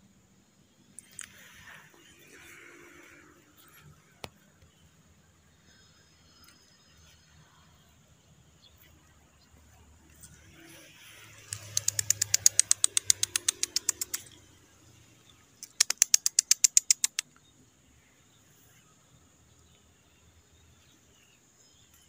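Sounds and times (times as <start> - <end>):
bird rapid rattling call: 11.2 - 15.0, 15.6 - 17.4.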